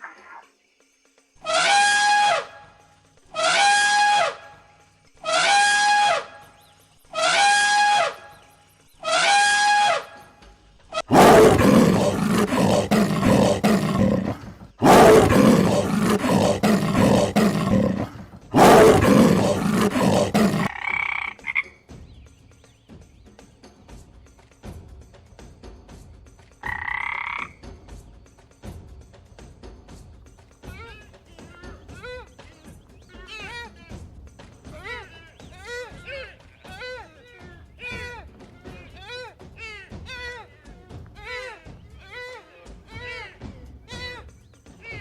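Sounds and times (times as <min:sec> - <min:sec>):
animal falling cries: 0:01.4 - 0:02.5, 0:11.0 - 0:20.7
animal rough roars: 0:11.0 - 0:20.7.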